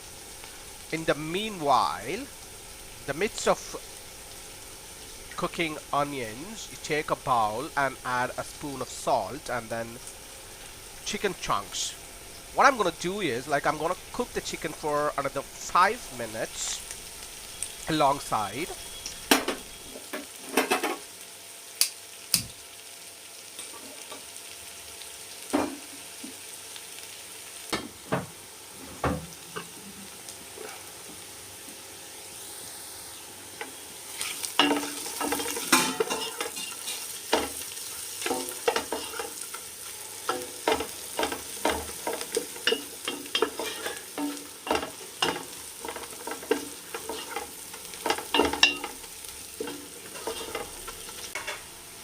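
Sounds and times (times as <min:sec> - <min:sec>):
onions sizzling in a pan: 0:00.0 - 0:52.0
spoon scraping a pan: 0:34.1 - 0:51.7.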